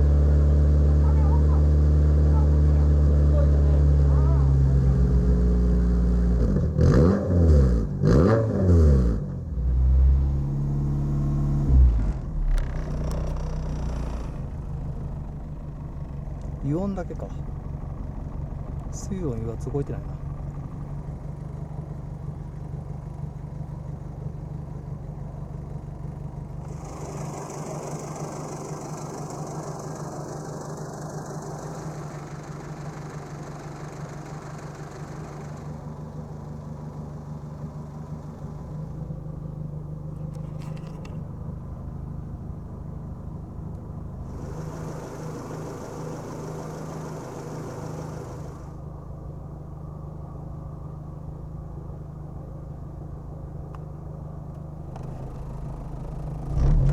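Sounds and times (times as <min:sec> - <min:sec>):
car engine idling: 0:00.0 - 0:07.1, 0:09.3 - 0:56.9
brief clicks: 0:40.2 - 0:41.2
hiss: 0:44.3 - 0:48.7.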